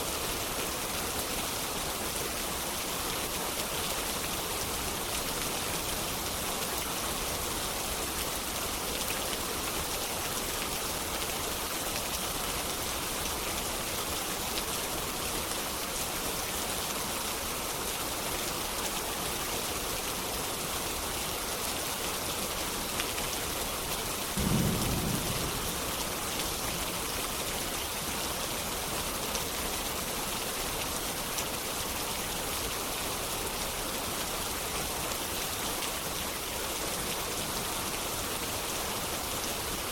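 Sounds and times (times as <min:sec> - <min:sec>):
steady rain: 0:00.0 - 0:39.9
distant thunder rumble: 0:24.4 - 0:26.5.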